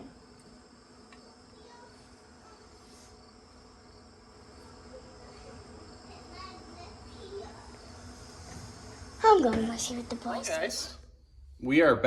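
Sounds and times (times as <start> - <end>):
faint high-pitched insect drone: 0.0 - 12.0.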